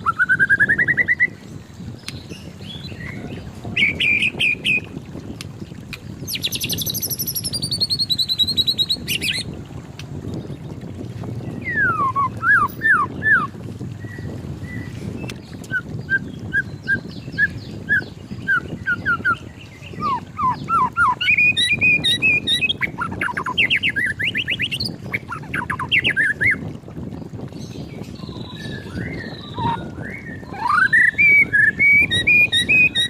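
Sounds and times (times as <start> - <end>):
bird singing whistled notes: 0.0 - 1.4, 2.2 - 4.9, 6.3 - 9.5, 11.5 - 26.6, 27.6 - 33.0.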